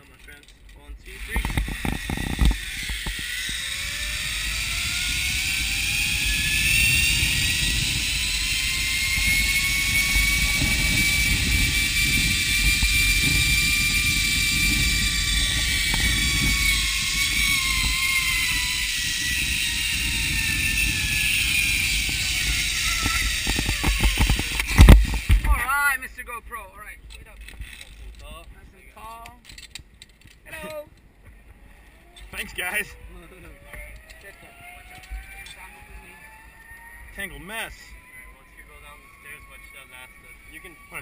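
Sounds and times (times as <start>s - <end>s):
zip line pulleys whining on cable: 0.0s - 26.2s, 27.2s - 28.2s, 31.5s - 41.0s
wind rumble on microphone: 0.8s - 25.8s.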